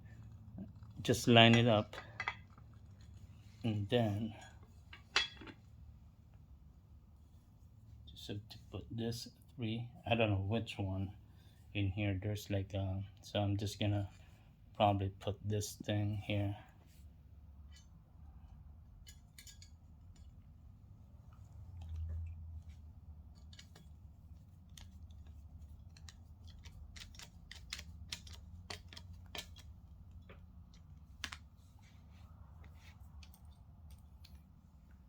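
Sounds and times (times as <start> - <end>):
low steady hum: 0.0 - 35.0
small parts clicking and tapping: 19.0 - 20.5, 23.3 - 24.0, 24.6 - 31.5.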